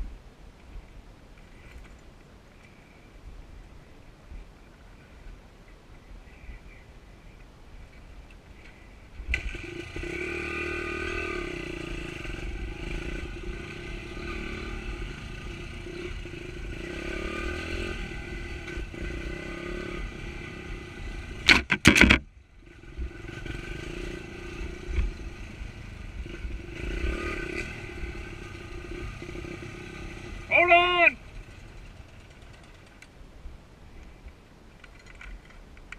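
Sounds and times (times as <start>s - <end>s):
small motorbike engine running: 9.3s - 33.1s.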